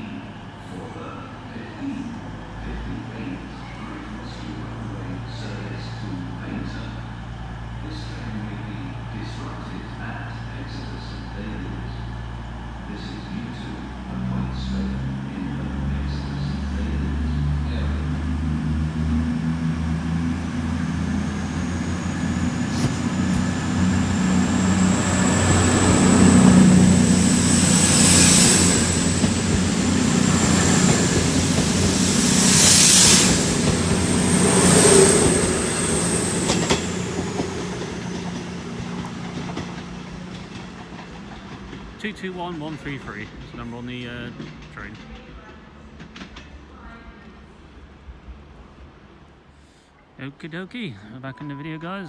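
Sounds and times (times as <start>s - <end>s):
train diesel engines running: 0.0s - 46.8s
wheel and rail noise: 16.4s - 48.2s
wheel squeal: 20.8s - 40.7s.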